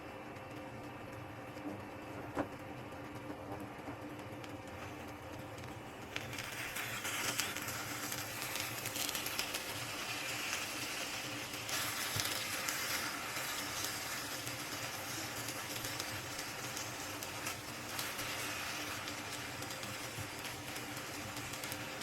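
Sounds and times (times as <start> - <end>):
food sizzling in hot oil: 5.6 - 22.0.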